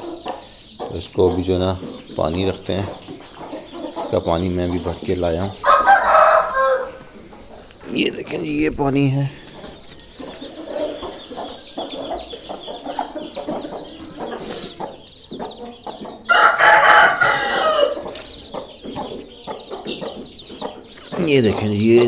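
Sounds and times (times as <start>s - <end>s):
chickens clucking: 0.0s - 22.0s
rooster crowing: 5.6s - 7.1s, 16.3s - 18.0s.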